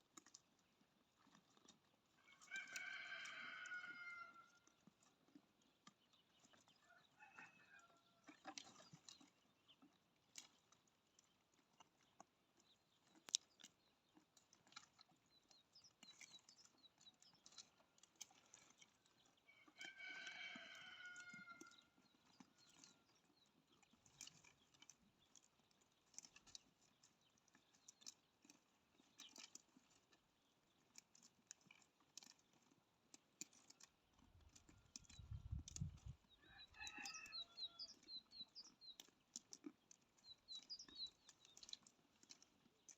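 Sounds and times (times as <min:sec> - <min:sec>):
small clicks and rustles: 0:00.0 - 0:42.9
farm animal call: 0:02.2 - 0:05.2, 0:17.6 - 0:24.7, 0:34.4 - 0:42.4.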